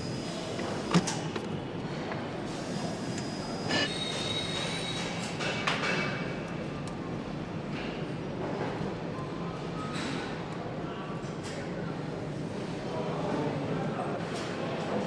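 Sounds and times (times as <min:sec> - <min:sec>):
workshop background noise: 0:00.0 - 0:15.0
high-pitched metallic squeal: 0:03.0 - 0:05.3.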